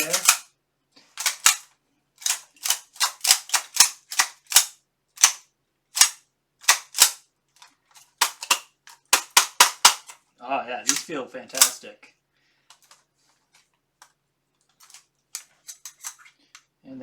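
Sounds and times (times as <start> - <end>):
steel gauntlet plates clicking: 0.0 - 0.5, 1.2 - 5.4, 6.0 - 10.2, 10.9 - 11.8, 14.7 - 16.3.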